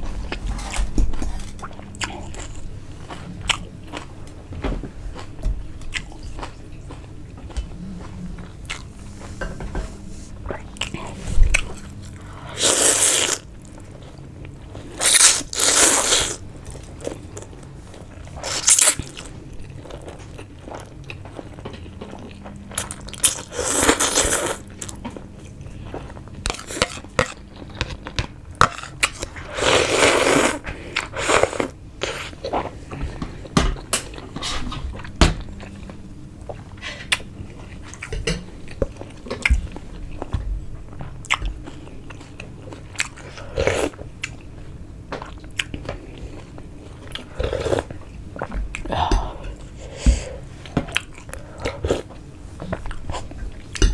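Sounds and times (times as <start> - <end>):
close chewing and biting: 0.2 - 4.2, 40.9 - 53.9.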